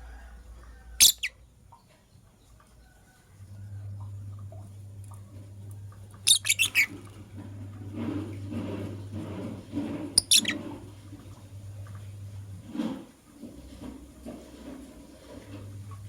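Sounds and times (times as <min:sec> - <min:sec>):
birds chirping: 0:01.0 - 0:02.3, 0:06.2 - 0:07.0, 0:10.2 - 0:10.6.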